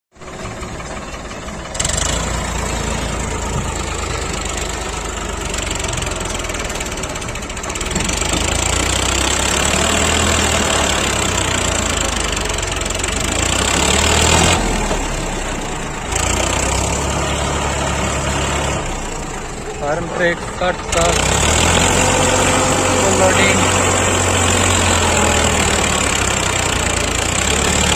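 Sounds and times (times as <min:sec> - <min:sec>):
heavy diesel engine running: 0:00.1 - 0:27.9.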